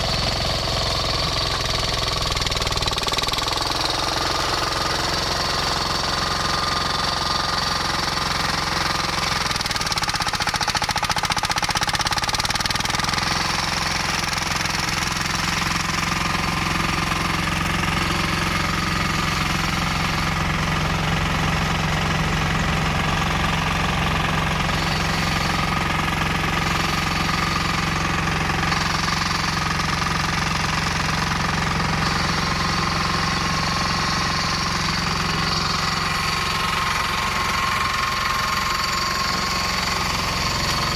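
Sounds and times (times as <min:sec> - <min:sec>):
diesel mower engine running: 0:00.0 - 0:40.9.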